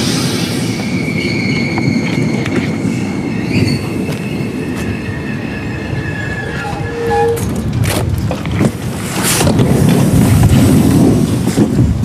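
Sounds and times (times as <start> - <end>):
train wheels rumbling: 0.0 - 12.0
high-pitched wheel squeal: 0.6 - 7.5
wheels clicking on rail: 5.9 - 12.0.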